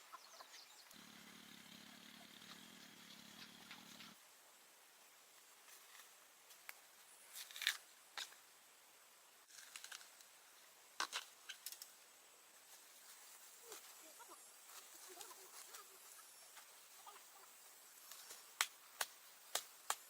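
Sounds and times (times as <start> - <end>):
light crackles and snaps: 9.5 - 10.3, 11.0 - 12.0, 18.0 - 20.0.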